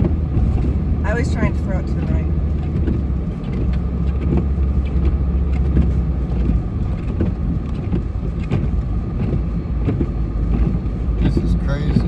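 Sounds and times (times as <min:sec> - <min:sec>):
truck engine rumble and road noise: 0:00.0 - 0:12.0.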